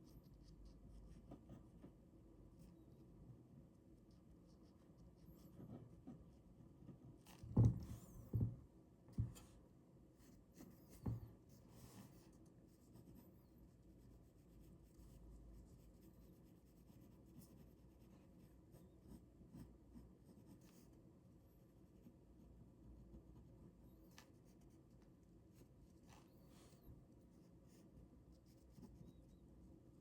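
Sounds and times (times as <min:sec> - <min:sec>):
soft knocks: 0:07.4 - 0:09.5.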